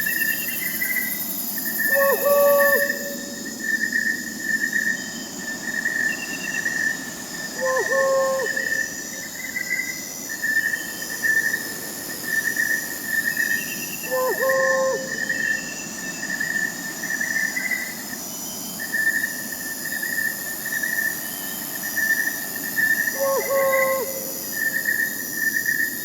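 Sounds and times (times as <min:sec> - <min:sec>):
crickets chirping: 0:00.0 - 0:26.0
owl hoot: 0:01.8 - 0:03.4, 0:07.6 - 0:09.2, 0:14.0 - 0:15.6, 0:23.1 - 0:24.7.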